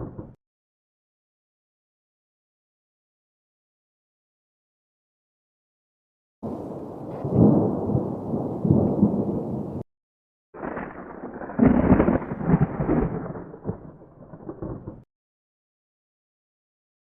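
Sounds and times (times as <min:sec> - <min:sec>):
thunder rumbling: 0:00.0 - 0:00.4, 0:06.4 - 0:09.8, 0:10.6 - 0:15.1.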